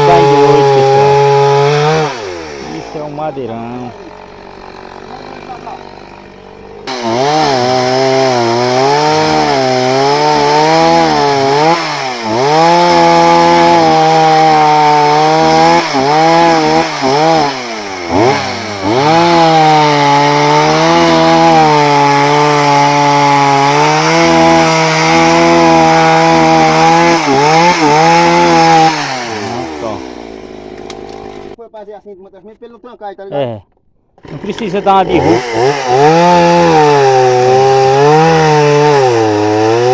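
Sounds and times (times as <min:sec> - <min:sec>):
chainsaw cutting wood: 0:00.0 - 0:31.6, 0:34.2 - 0:39.9.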